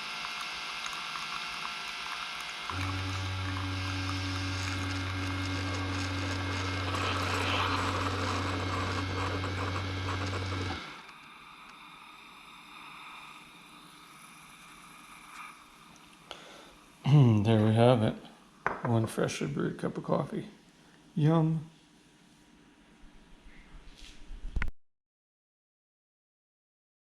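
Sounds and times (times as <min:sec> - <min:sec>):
coffee maker pump humming: 0:00.0 - 0:16.4
hot water hissing: 0:00.0 - 0:17.1.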